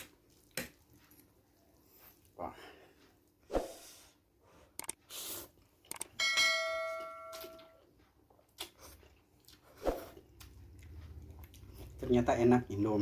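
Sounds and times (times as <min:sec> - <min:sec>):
metallic ring of tableware: 0:06.2 - 0:07.7.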